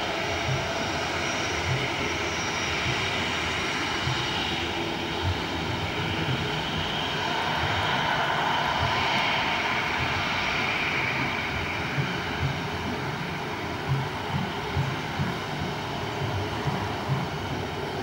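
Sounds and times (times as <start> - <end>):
jet airliner passing: 0.0 - 18.0.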